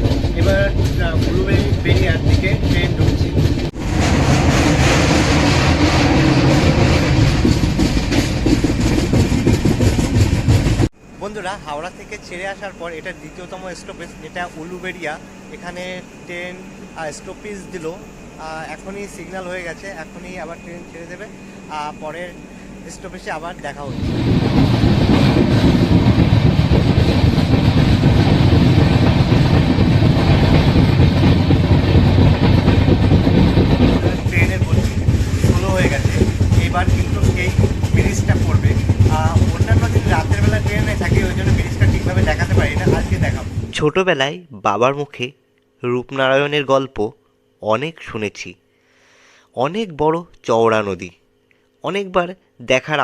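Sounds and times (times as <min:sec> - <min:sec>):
wheels clattering over rail joints: 0:00.0 - 0:10.9, 0:23.9 - 0:43.8
train rumbling on track: 0:00.0 - 0:43.9.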